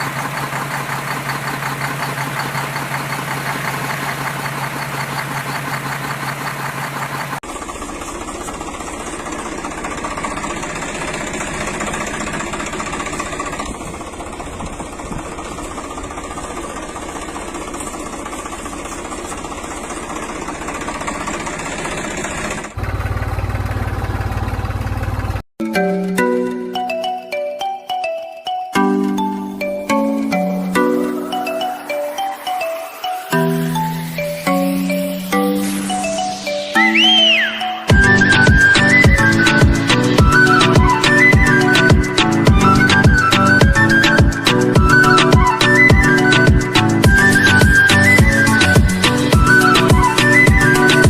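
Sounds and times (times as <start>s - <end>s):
small tractor motor running: 0.0s - 26.7s, 37.3s - 51.0s.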